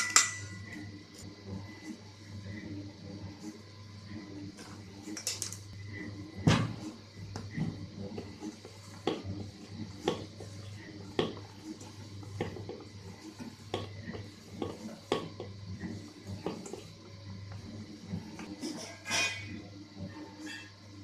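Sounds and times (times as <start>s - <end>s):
utensil clinking against a dish: 0.0s - 0.8s.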